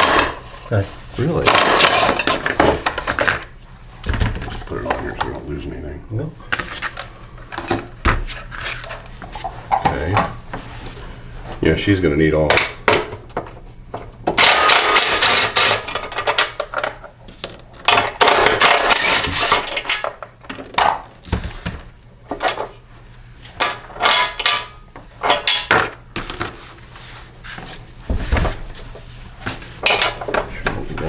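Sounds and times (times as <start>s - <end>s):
metal parts clinking and clattering: 0.0s - 0.8s, 1.4s - 3.2s, 14.4s - 17.0s, 17.9s - 20.2s, 23.6s - 26.0s, 29.8s - 30.5s.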